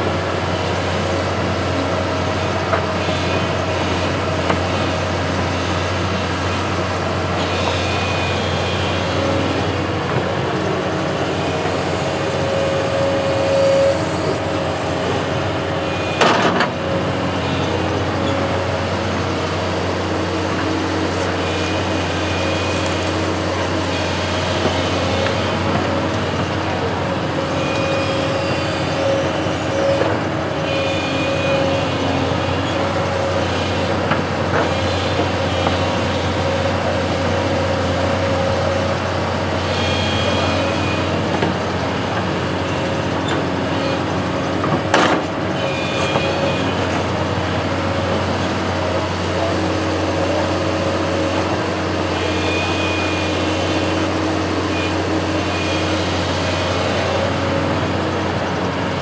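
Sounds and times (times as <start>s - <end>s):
construction machine engine running: 0.0s - 59.0s
high whine: 7.4s - 18.7s, 21.5s - 33.0s.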